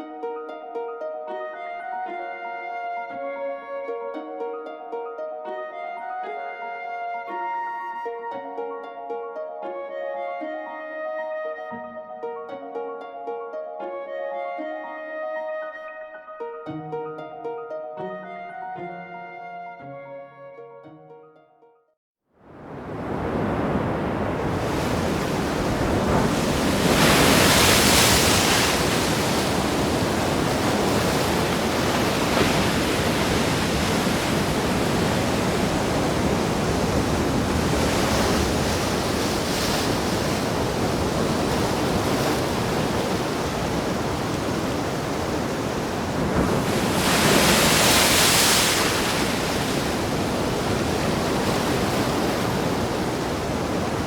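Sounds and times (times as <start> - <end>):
bigger waves surging: 22.4 - 54.0
waves washing: 22.5 - 54.0.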